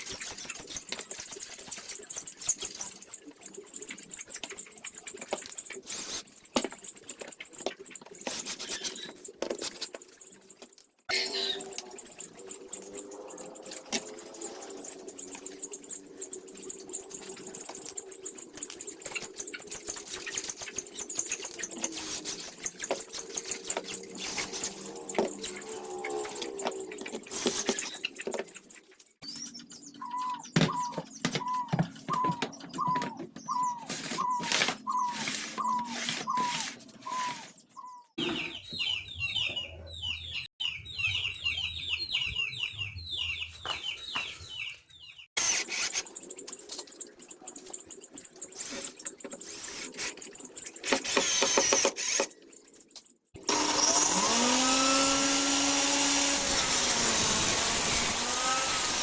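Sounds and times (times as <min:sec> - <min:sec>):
squeaks and clicks of tools: 0:00.0 - 0:39.8, 0:45.4 - 0:59.0
power tool motor running: 0:50.9 - 0:52.3, 0:53.4 - 0:59.0.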